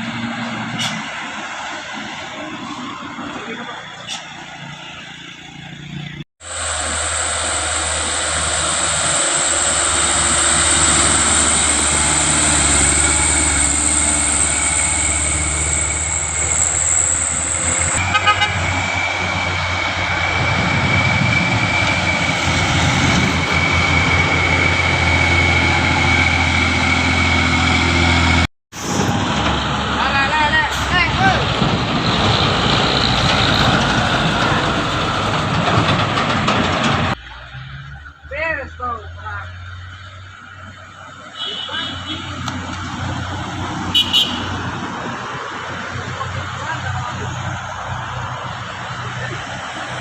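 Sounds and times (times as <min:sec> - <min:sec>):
truck engine hum: 0:00.0 - 0:50.0
high steady whine: 0:06.4 - 0:32.1.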